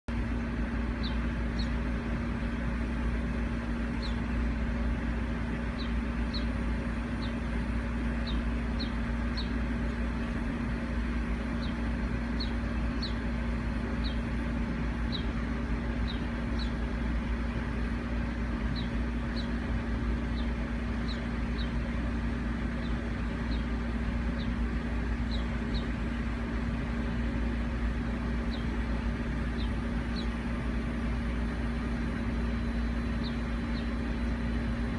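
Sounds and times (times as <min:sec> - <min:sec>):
steady hum: 0:00.1 - 0:34.9
steady low rumble: 0:00.1 - 0:34.9
small bird chirping: 0:00.9 - 0:16.9, 0:18.6 - 0:21.9, 0:22.7 - 0:26.1, 0:28.4 - 0:28.8, 0:29.4 - 0:30.4, 0:33.0 - 0:34.5.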